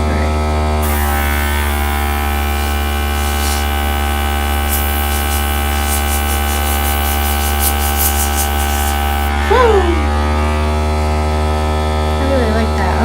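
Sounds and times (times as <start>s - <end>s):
air gun hissing pulses: 0.0s - 10.8s
compressor humming: 0.0s - 13.0s.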